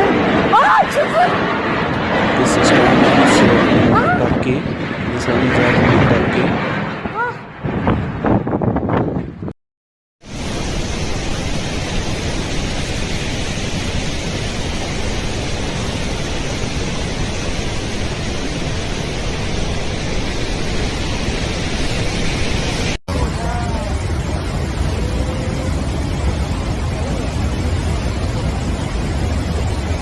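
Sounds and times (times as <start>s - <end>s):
deep storm rumble: 0.0s - 9.5s, 10.3s - 30.0s
wind and rain hiss: 1.9s - 7.2s, 10.3s - 23.0s.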